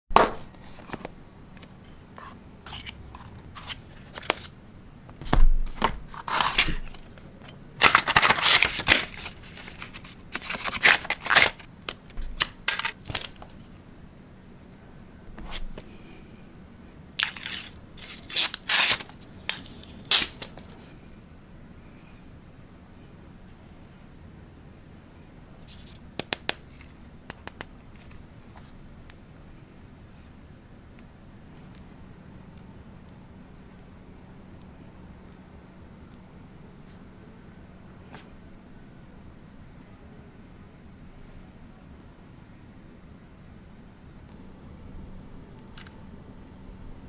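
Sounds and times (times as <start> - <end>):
paper and plastic rustling: 0.2 - 1.1, 2.0 - 4.5, 5.2 - 13.6, 17.2 - 20.8.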